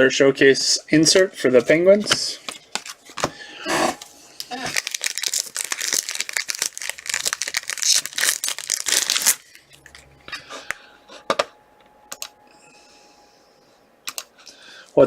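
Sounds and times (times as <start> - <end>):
wrapper tearing and crinkling: 4.4 - 10.1.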